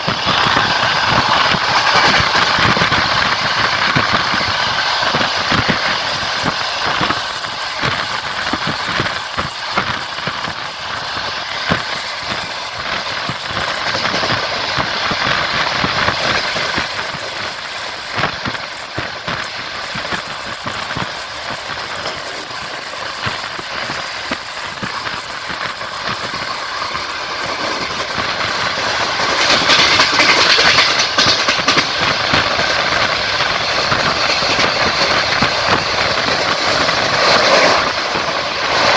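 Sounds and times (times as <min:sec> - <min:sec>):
train wheels clattering: 0:00.0 - 0:38.9.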